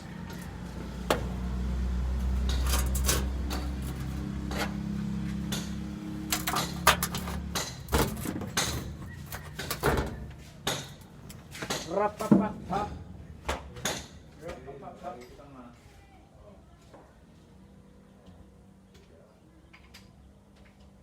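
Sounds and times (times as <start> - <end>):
metal clanks and knocks: 2.2 - 14.6.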